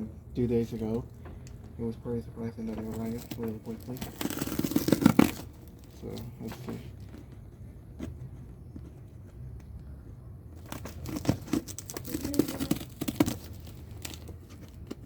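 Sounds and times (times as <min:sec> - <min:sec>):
packaging crinkling and tearing: 0:02.8 - 0:07.2, 0:10.6 - 0:15.0.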